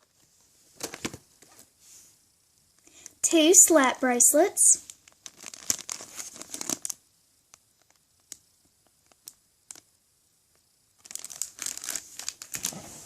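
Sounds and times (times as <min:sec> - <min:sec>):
plastic packaging crinkling: 0:00.8 - 0:01.6, 0:05.0 - 0:07.0, 0:11.0 - 0:13.0.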